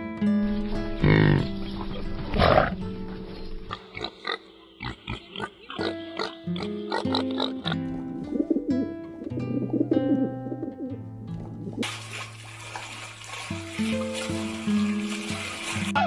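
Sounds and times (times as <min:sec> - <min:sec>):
background music: 0:00.0 - 0:16.0
piglets grunting and squealing: 0:03.7 - 0:07.8.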